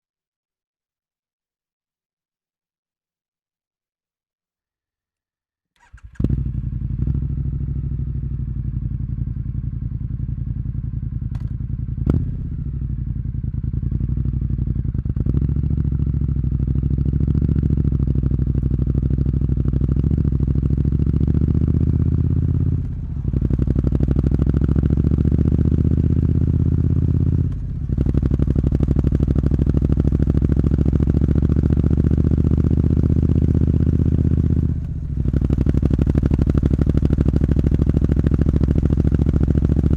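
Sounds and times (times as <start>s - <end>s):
motorcycle engine idling: 5.8s - 39.9s.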